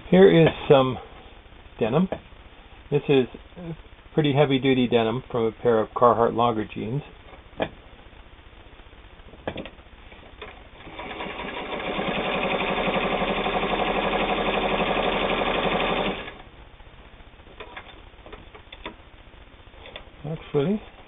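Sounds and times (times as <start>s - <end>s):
sewing machine stitching: 10.8s - 16.4s.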